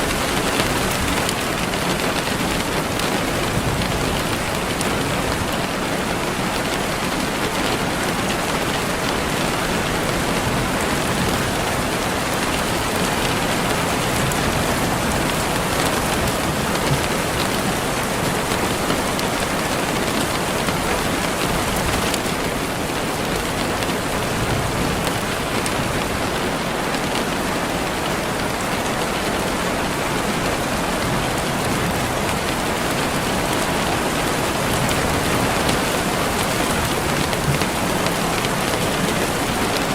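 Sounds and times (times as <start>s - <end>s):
rain falling on a surface: 0.0s - 39.9s.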